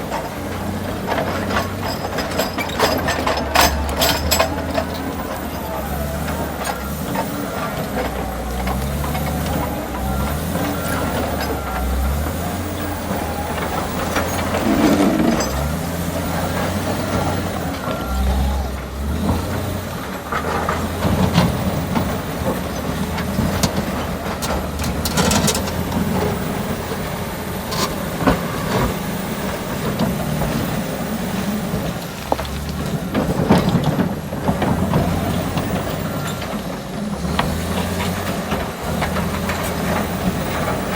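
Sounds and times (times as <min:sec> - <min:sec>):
bulldozer diesel engine: 0:00.0 - 0:40.9
metallic clanks and scrapes: 0:01.1 - 0:05.1, 0:13.6 - 0:17.3, 0:23.2 - 0:26.4.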